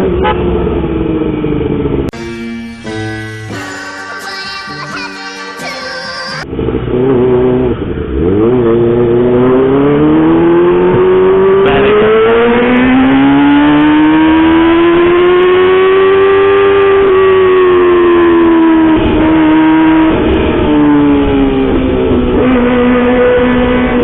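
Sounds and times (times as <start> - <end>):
motorcycle engine accelerating: 6.4 - 24.0.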